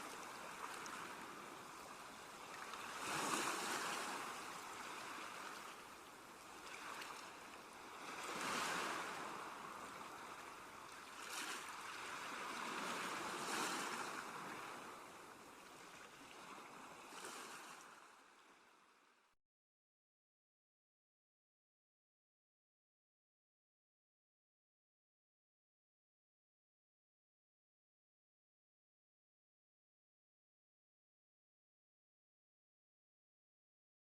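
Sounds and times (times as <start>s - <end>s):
sea waves washing ashore: 0.0s - 18.0s.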